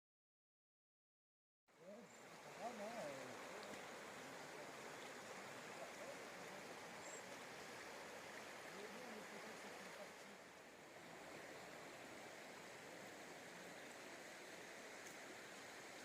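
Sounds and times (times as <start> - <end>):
faint rushing noise outdoors: 1.7 - 16.0
faint voice: 1.8 - 4.8.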